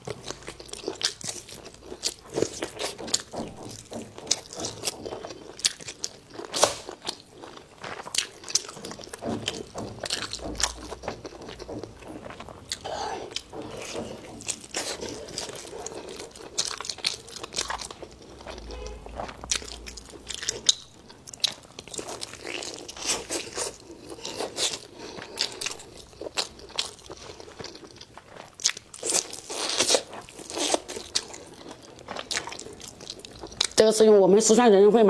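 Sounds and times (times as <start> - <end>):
person chewing crunchy food: 0.0 - 33.8.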